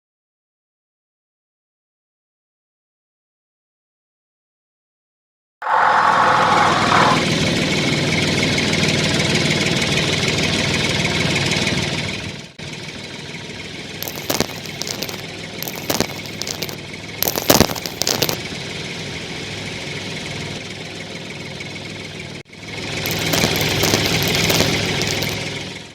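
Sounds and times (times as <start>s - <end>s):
sharp clicking and clatter: 14.0s - 18.4s, 23.0s - 25.4s.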